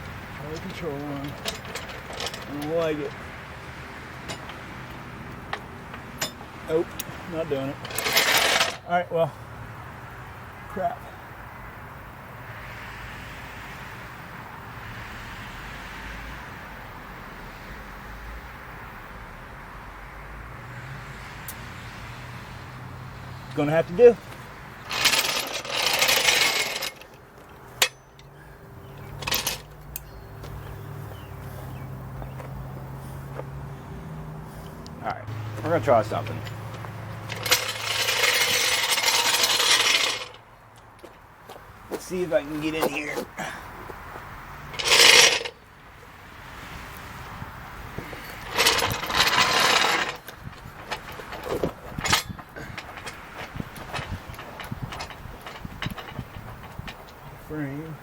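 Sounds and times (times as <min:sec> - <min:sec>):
sharp metal clank: 0:05.5 - 0:06.5, 0:27.8 - 0:28.4
floor jack metal scraping: 0:07.8 - 0:08.8, 0:24.8 - 0:27.2, 0:35.3 - 0:40.4, 0:44.7 - 0:45.6, 0:48.0 - 0:57.4
floor jack metallic rattling: 0:24.9 - 0:27.0, 0:35.5 - 0:40.4.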